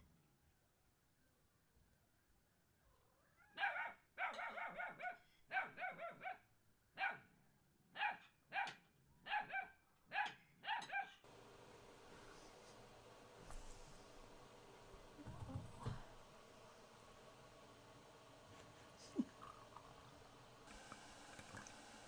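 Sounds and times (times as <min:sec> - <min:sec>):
dog barking: 0:03.5 - 0:07.3, 0:08.0 - 0:11.2.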